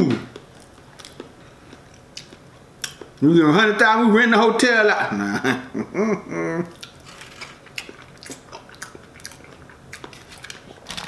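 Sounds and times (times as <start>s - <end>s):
man chewing: 0.3s - 3.2s, 6.7s - 11.0s.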